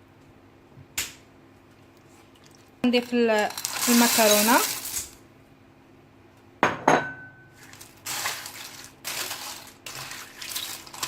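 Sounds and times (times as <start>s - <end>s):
food scraping in a pot: 7.6s - 11.0s.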